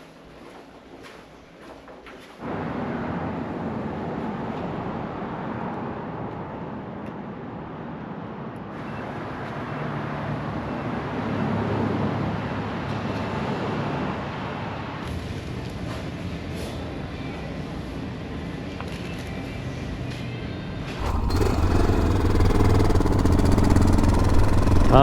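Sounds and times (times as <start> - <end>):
motorcycle engine running: 21.0 - 25.0.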